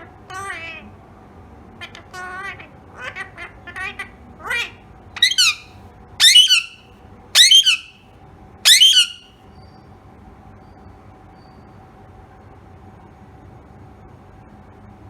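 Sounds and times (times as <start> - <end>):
parrot screeching: 1.9 - 6.8, 7.4 - 7.9, 8.7 - 9.2.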